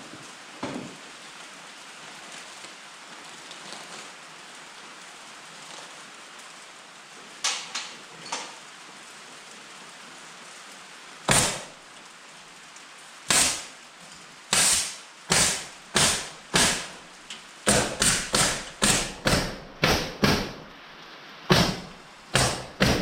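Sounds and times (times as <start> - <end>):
air stapler shots: 11.3 - 11.7, 13.3 - 13.7, 14.5 - 17.0, 17.7 - 20.6, 21.5 - 23.0.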